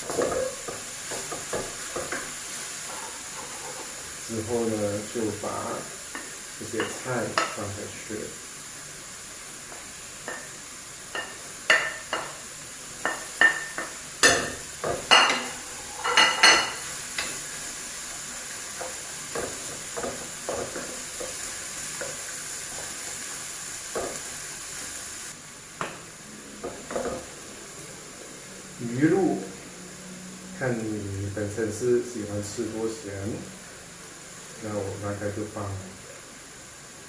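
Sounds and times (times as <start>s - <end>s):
food sizzling in a hot pan: 0.0s - 37.0s
spatula clanking against pan: 11.1s - 12.4s.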